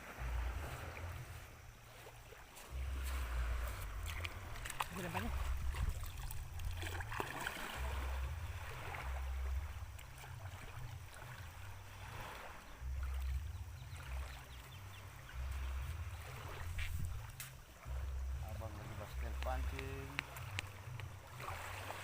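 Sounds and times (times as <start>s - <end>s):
water splashing and lapping: 0.0s - 22.0s
wind buffeting microphone: 2.7s - 7.1s, 12.8s - 17.4s.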